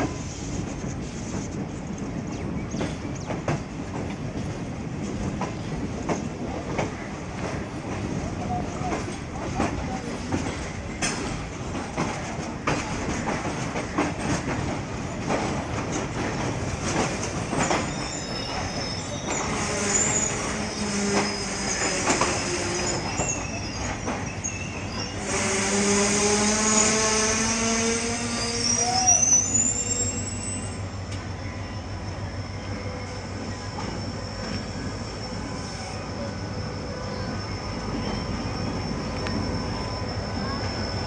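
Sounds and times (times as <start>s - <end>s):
train wheels clicking over rail joints: 0.0s - 31.4s
high-pitched wheel squeal: 17.4s - 31.0s, 32.5s - 41.0s.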